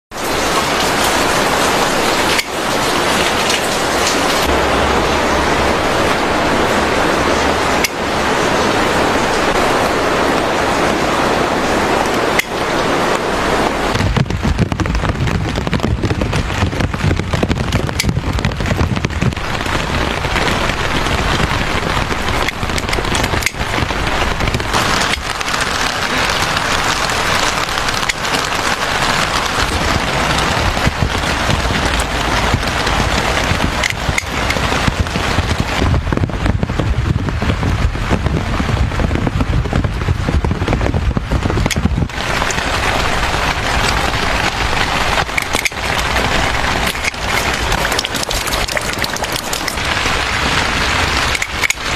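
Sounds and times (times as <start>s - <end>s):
close crackling and rustling: 0.1s - 51.9s
drizzle falling: 41.7s - 51.9s.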